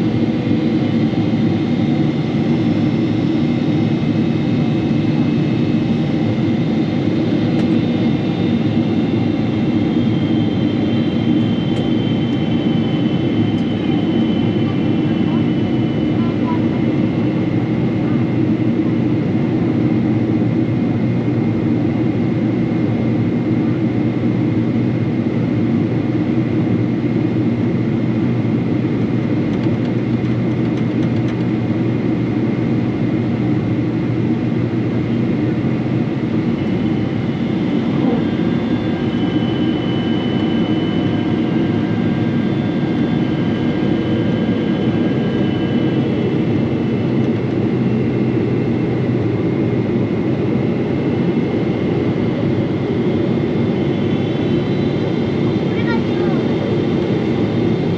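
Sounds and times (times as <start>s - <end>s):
airliner cabin rumble and hum: 0.0s - 57.9s
faint high whining tones: 36.4s - 47.3s.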